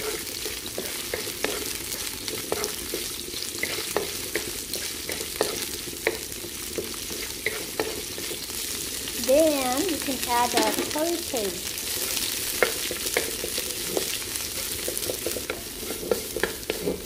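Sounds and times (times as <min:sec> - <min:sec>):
sizzling in hot oil: 0:00.0 - 0:17.0
utensil tapping on pan: 0:10.4 - 0:11.1
wooden utensil stirring: 0:12.6 - 0:17.0.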